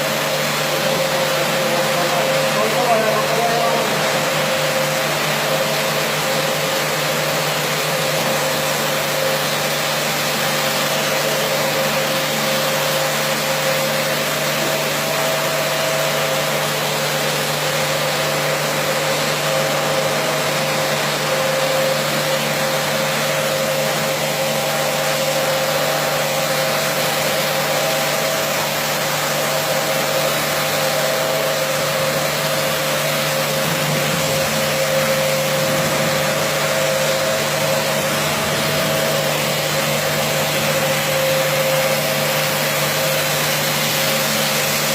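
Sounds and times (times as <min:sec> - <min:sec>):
carpet washing machine whine: 0:00.0 - 0:44.9.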